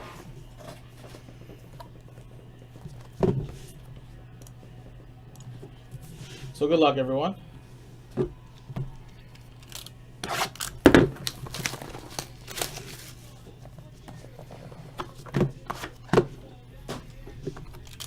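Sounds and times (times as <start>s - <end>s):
plastic shrink-wrap tearing and crinkling: 9.6s - 13.4s.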